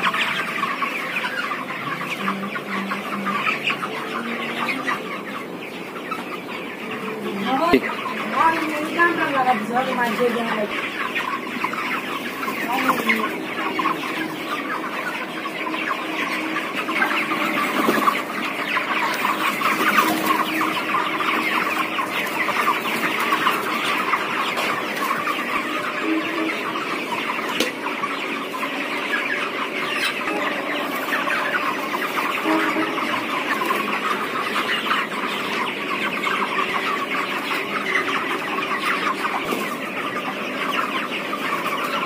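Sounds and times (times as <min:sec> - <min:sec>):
chickens clucking and chirping: 0:00.0 - 0:42.0.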